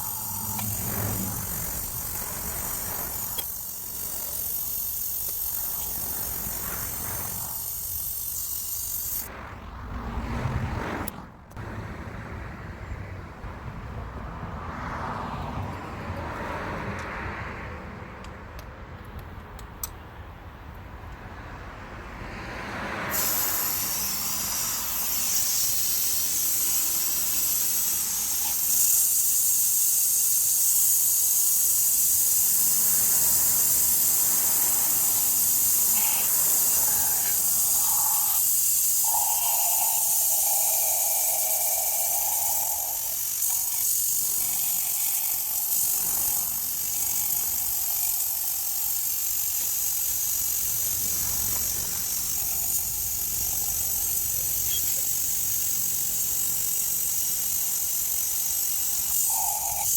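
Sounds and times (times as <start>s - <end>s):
high-pitched hiss: 0.0s - 9.3s, 23.1s - 59.9s.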